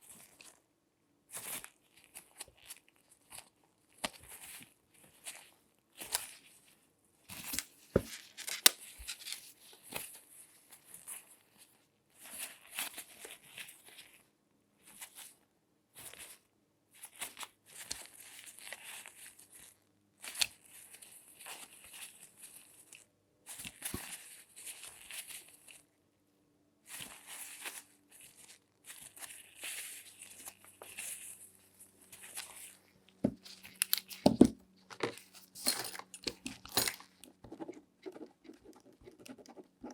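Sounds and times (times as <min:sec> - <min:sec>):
gloved hands rustling: 0:27.0 - 0:39.9.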